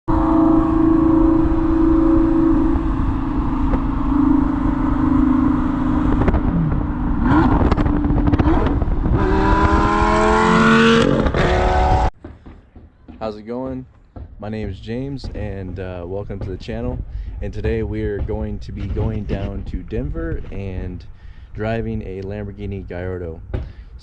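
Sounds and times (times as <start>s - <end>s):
sports car engine accelerating: 0.1s - 12.1s.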